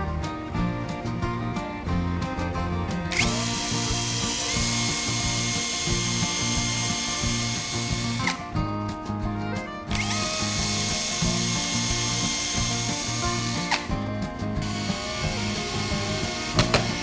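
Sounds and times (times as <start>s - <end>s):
background music with steady beat: 0.0s - 17.0s
power tool motor spinning: 3.1s - 8.6s, 9.9s - 14.0s, 14.6s - 17.0s.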